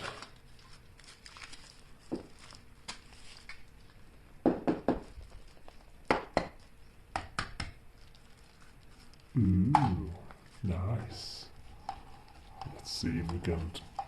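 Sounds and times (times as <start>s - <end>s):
foil wrapper crinkling: 0.0s - 4.3s, 5.1s - 7.0s, 7.8s - 9.4s.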